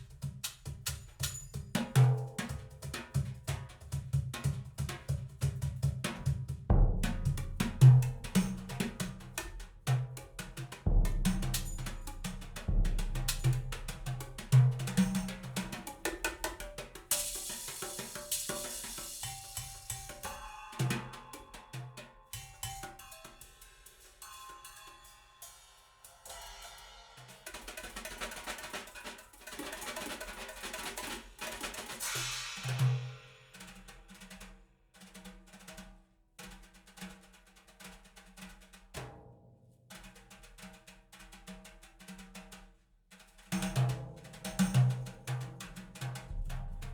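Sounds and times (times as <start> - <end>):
drum-led instrumental music: 0.0 - 34.1, 43.6 - 46.9
deep kick drum thuds: 6.7 - 8.7, 10.8 - 15.0, 46.3 - 46.9
bright cymbal washes: 10.9 - 16.0, 16.6 - 28.0, 31.2 - 33.8.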